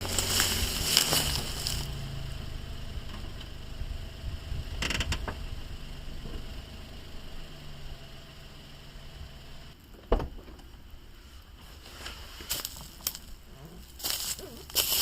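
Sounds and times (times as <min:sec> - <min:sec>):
van engine hum: 0:00.0 - 0:15.0
cabin creaking: 0:04.8 - 0:05.4.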